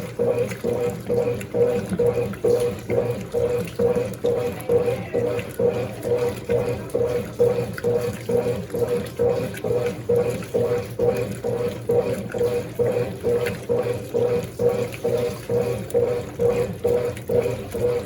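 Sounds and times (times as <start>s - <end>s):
washing machine agitator sloshing: 0.0s - 18.0s.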